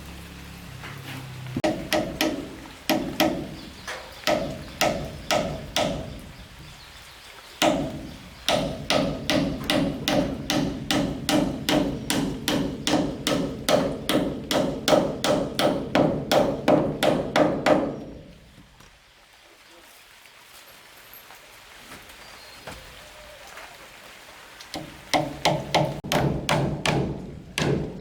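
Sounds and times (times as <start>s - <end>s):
hammer blows on wood: 1.6s - 6.3s, 7.6s - 18.2s.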